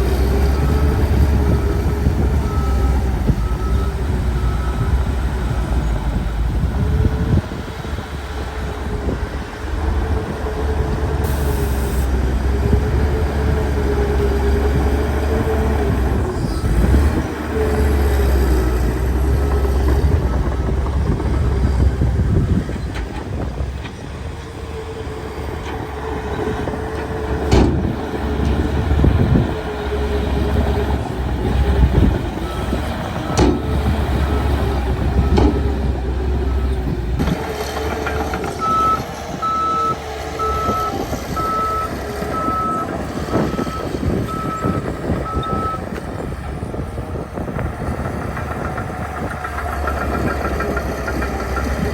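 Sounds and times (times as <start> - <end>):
heavy machine diesel engine: 0.0 - 51.9
reversing alarm beeping: 38.6 - 45.9.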